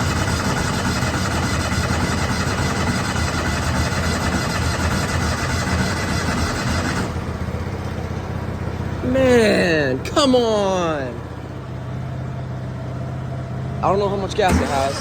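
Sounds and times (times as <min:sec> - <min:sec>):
small petrol engine running: 0:00.0 - 0:15.0.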